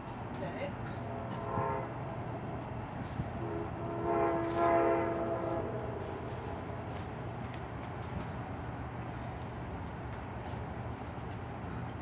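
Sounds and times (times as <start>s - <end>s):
locomotive horn blasts: 1.3s - 2.1s, 3.3s - 6.6s.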